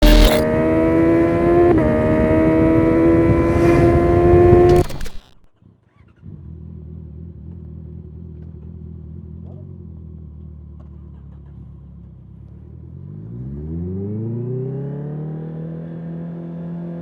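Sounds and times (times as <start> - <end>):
quickshifter upshift: 0.0 - 0.5, 3.4 - 5.5
motorcycle engine accelerating: 0.0 - 5.4.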